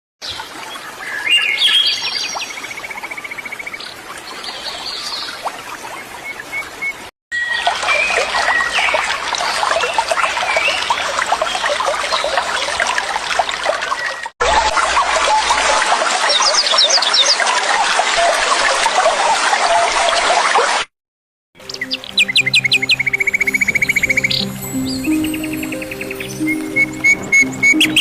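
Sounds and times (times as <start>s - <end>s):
small birds chirping: 21.6s - 28.0s
waterfall rushing: 22.1s - 28.0s.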